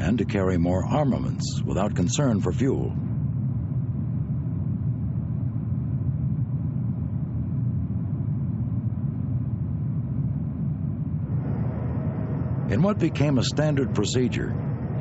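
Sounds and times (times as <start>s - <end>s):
aircraft engines rumbling: 0.0s - 15.0s.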